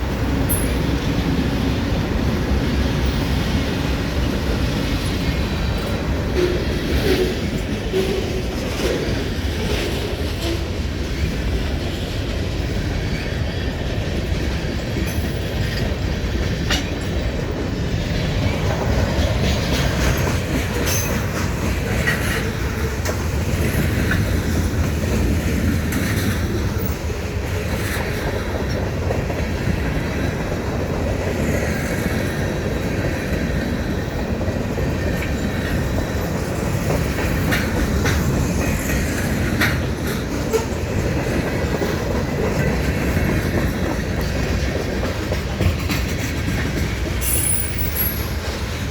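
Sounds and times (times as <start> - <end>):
clicking over rail joints: 0.0 - 48.9
train wheels rumbling on rails: 0.0 - 48.9
faint wheel squeals: 47.2 - 48.4.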